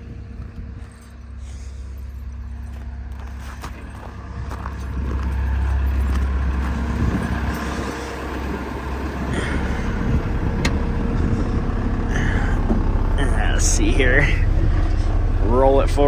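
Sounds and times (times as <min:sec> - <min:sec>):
wheel loader diesel engine revving: 0:00.0 - 0:16.0.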